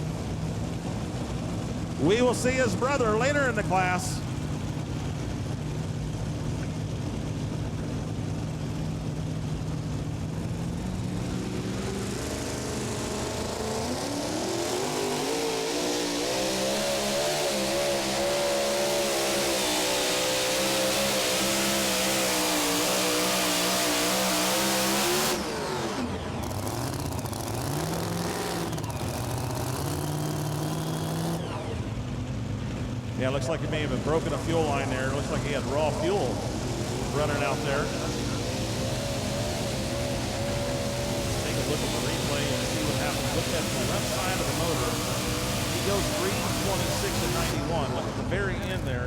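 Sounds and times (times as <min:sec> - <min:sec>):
truck engine revving: 0:00.0 - 0:49.0
announcer speaking: 0:02.0 - 0:04.3, 0:33.1 - 0:49.0.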